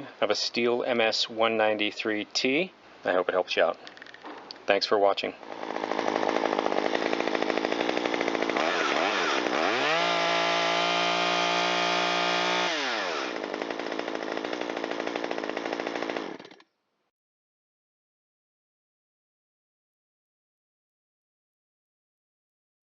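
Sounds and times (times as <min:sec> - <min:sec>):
chainsaw engine idling and revving: 0:05.4 - 0:16.6.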